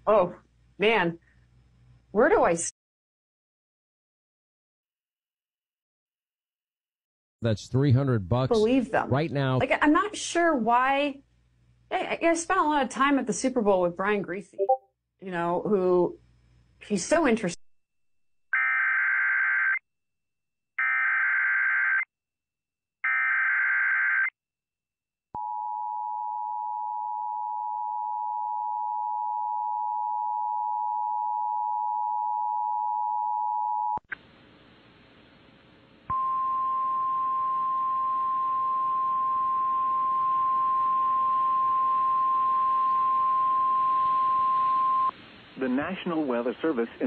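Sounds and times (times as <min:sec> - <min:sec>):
steady warning tone: 0:36.1 - 0:45.1
radio hiss: 0:45.1 - 0:47.0.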